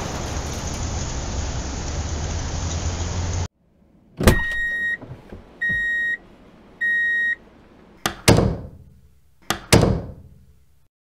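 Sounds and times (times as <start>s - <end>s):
plastic doors clacking shut: 4.2s - 6.2s, 8.0s - 10.4s
electronic beeps: 5.6s - 6.2s, 6.8s - 7.4s.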